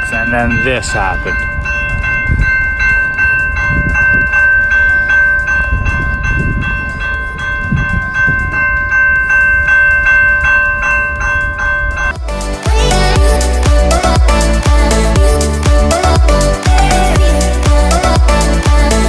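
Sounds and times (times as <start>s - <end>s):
level crossing bell ringing: 0.0s - 12.3s.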